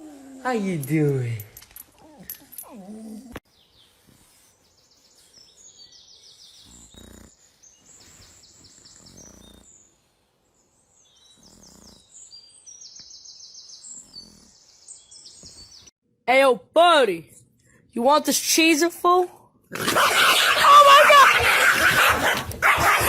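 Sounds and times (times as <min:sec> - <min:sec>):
small birds trilling: 0:02.0 - 0:15.9.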